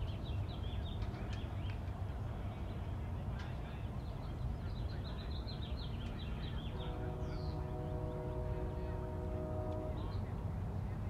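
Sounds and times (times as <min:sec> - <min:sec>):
low background noise: 0:00.0 - 0:11.0
birds chirping: 0:04.7 - 0:10.3.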